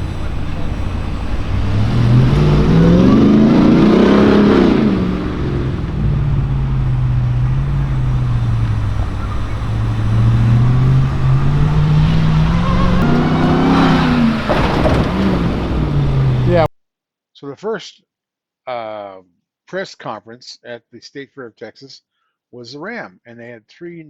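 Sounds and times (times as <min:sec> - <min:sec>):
pickup truck engine accelerating: 0:00.0 - 0:16.7.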